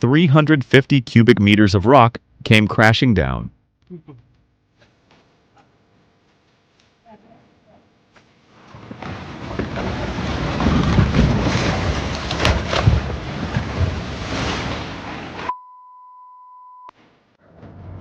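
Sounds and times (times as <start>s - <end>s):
rockfall rumbling: 8.6s - 15.5s
rock striking rock cracks: 8.7s - 13.7s.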